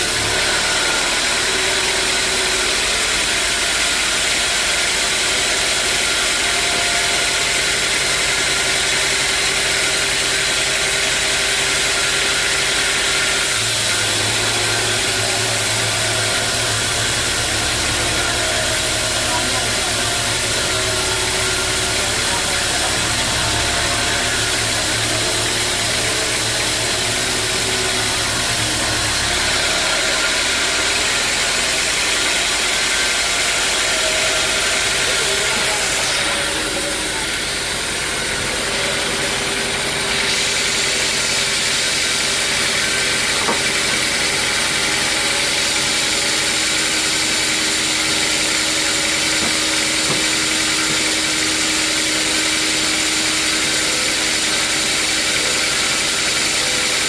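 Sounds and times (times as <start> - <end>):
sawmill motor hissing: 0.0 - 57.0.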